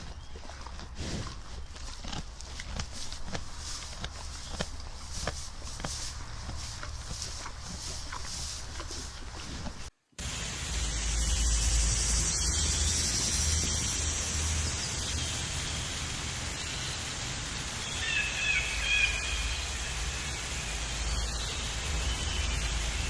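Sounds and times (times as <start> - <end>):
low outdoor rumble: 0.0 - 23.0
high chirping calls: 17.8 - 23.0.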